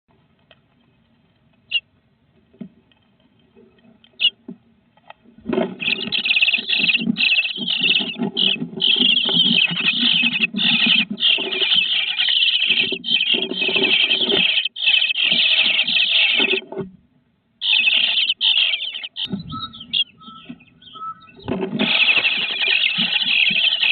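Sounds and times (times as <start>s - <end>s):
nestling birds chirping: 3.8s - 4.6s, 5.2s - 16.8s, 17.6s - 23.9s
faint single bird peeps: 17.9s - 21.4s.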